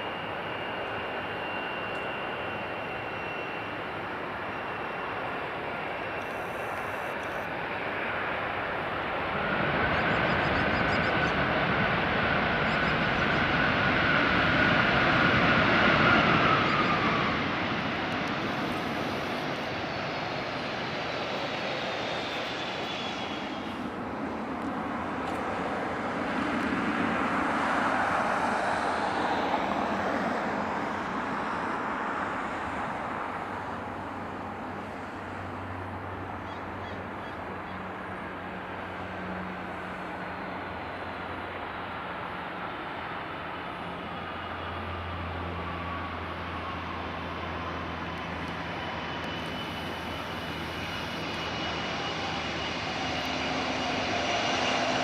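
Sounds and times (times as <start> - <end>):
thin engine whine: 0.0 - 32.8, 38.4 - 55.0
jet engines roaring: 0.0 - 55.0.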